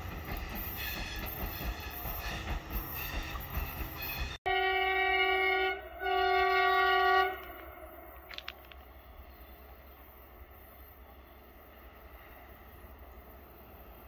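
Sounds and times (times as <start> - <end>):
train wheels rumbling on rails: 0.0 - 4.5
locomotive horn blasts: 4.1 - 7.7.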